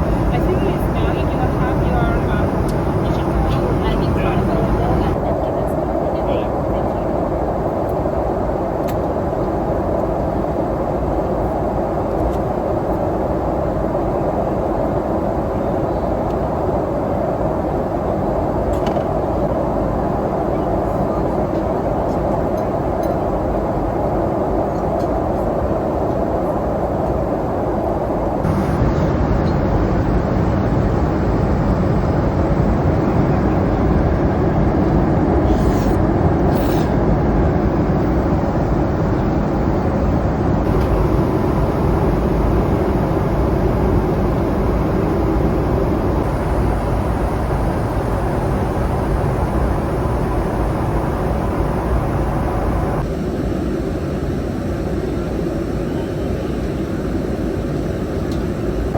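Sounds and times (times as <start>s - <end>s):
airliner cabin noise: 0.0s - 58.9s.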